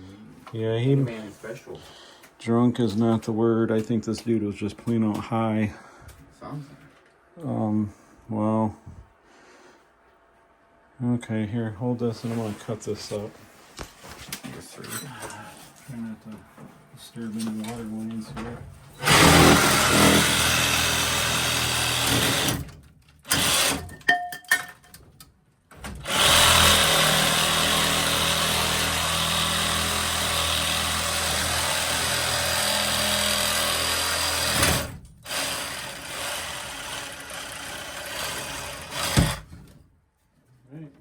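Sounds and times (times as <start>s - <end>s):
power cutting tool running: 19.0s - 22.6s, 26.0s - 39.4s.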